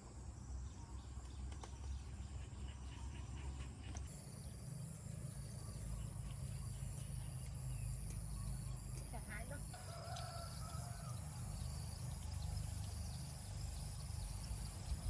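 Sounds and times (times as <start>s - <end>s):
high insect drone: 4.1s - 15.0s.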